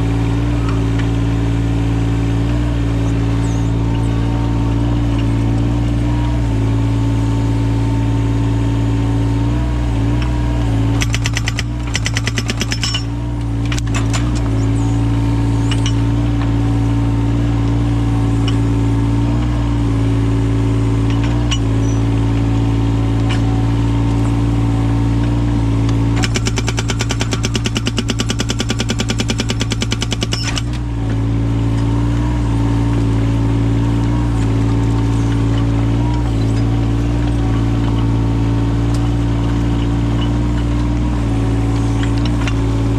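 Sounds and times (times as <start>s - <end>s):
diesel engine running: 0.0s - 42.9s
hydraulic breaker hammering: 11.0s - 13.2s, 26.1s - 30.8s.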